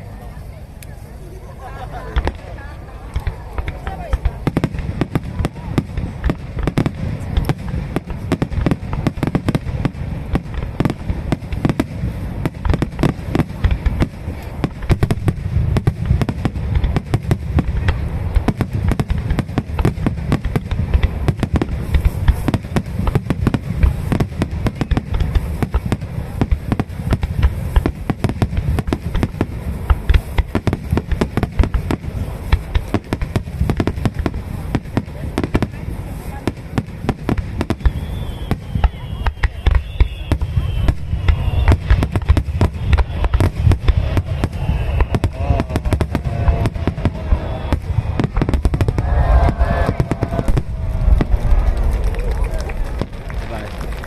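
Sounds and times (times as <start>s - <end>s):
deep low boom: 40.9s - 54.0s.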